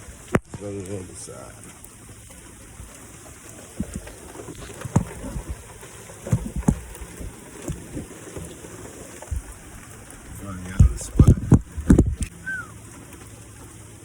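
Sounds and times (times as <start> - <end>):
steady rain: 0.0 - 14.0
dull low thumps: 4.8 - 8.5, 9.2 - 12.7.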